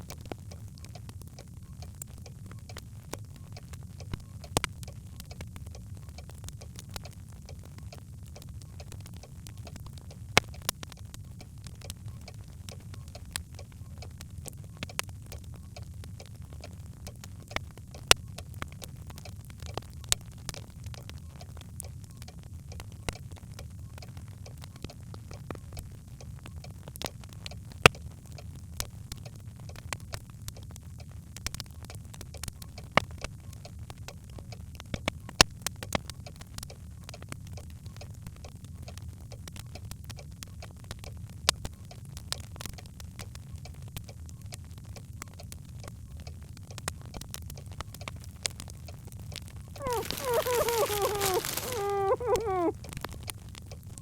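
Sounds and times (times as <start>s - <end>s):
logs crackling in a fireplace: 0.0s - 54.0s
logs crackling in fireplace: 49.4s - 53.2s.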